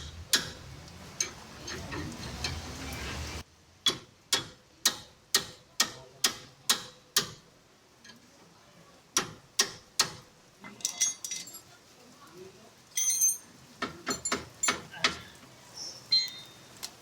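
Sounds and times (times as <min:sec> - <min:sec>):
sharp metallic taps: 0:00.0 - 0:00.6.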